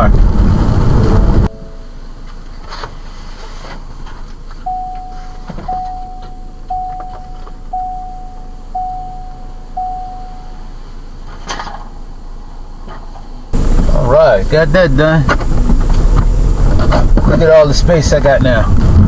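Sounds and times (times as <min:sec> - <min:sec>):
steady low rumble: 0:00.0 - 0:19.0
car electronic warning chime: 0:01.1 - 0:02.1, 0:04.6 - 0:11.1.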